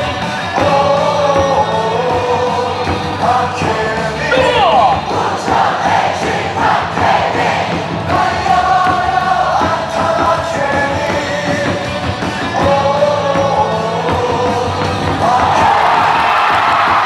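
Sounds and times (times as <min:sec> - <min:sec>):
crowd singing cheer song: 0:00.7 - 0:16.2
music with steady beat: 0:04.3 - 0:05.5.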